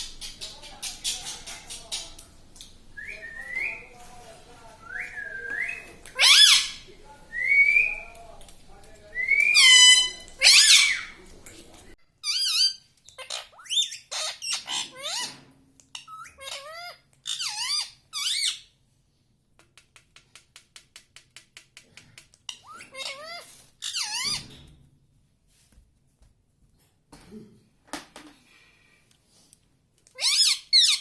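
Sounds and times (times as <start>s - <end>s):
parrot squawking and chirping: 0.0s - 3.9s, 5.0s - 8.2s, 9.2s - 11.2s, 12.2s - 18.7s, 22.5s - 24.5s, 30.1s - 31.0s.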